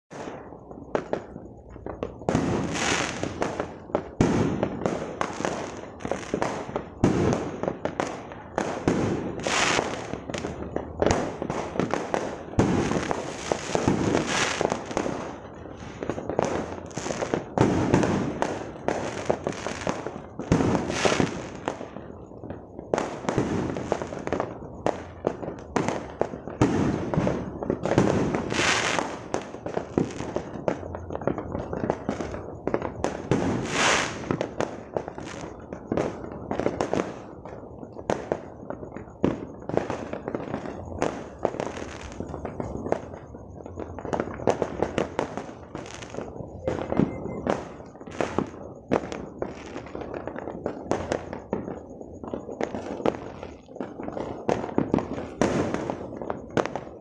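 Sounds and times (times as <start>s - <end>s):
fireworks bursting: 0.1s - 57.0s.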